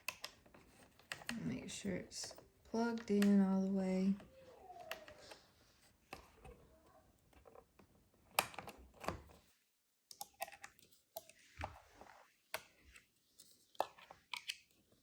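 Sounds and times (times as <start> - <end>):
plastic clicks and taps: 0.0 - 1.5, 2.2 - 3.6, 7.3 - 9.4, 10.1 - 11.8, 13.8 - 14.8.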